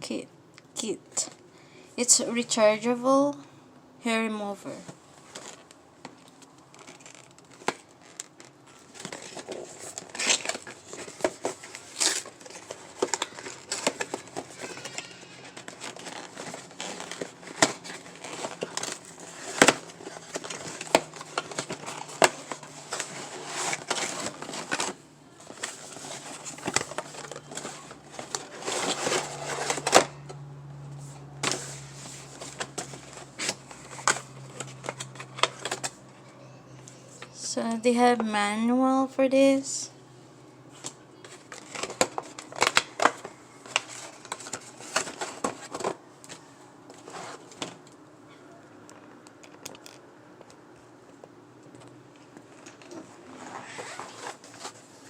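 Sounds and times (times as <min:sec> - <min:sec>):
box rustling and crinkling: 0:05.2 - 0:05.7, 0:06.6 - 0:30.2, 0:31.4 - 0:36.0, 0:41.2 - 0:47.8, 0:52.5 - 0:55.0.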